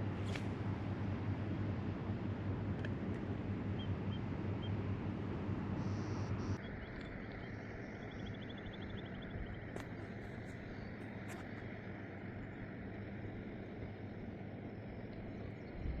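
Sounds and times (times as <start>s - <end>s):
faint bird chirps: 5.8s - 11.4s.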